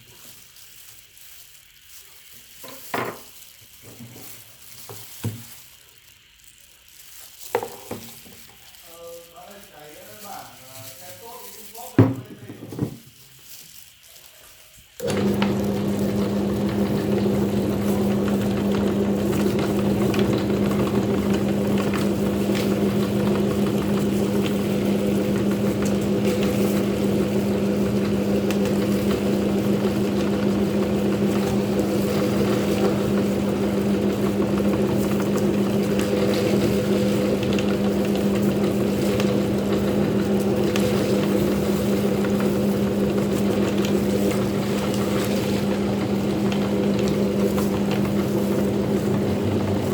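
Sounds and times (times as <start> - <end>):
meat grinder motor humming: 15.0 - 49.9.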